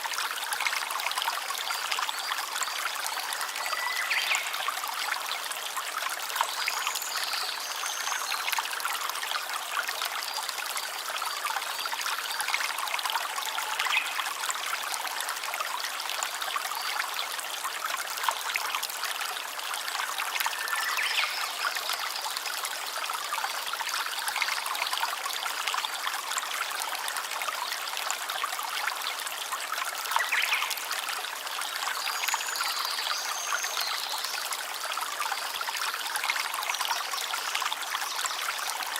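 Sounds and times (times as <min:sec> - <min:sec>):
stream babbling over stones: 0:00.0 - 0:38.9.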